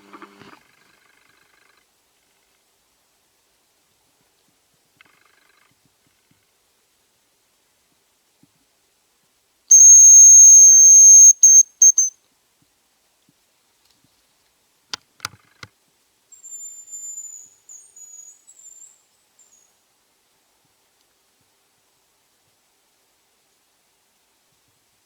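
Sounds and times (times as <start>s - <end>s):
faint high trilling whistle: 9.7s - 12.1s
high decoy whistle notes: 9.7s - 12.1s.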